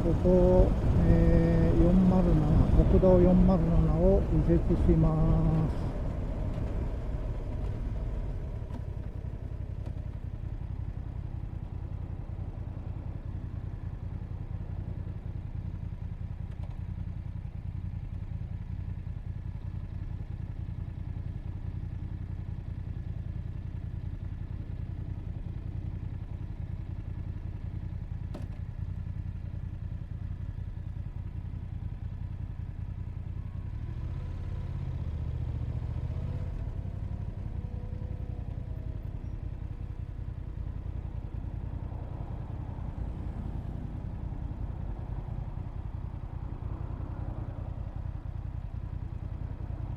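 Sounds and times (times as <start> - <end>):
motorcycle engine idling: 0.0 - 49.9.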